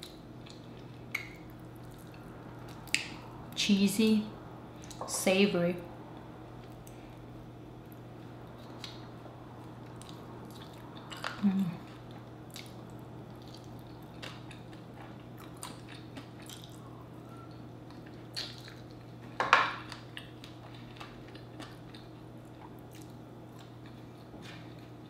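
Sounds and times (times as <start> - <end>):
person chewing: 0.0 - 3.2, 6.6 - 25.0.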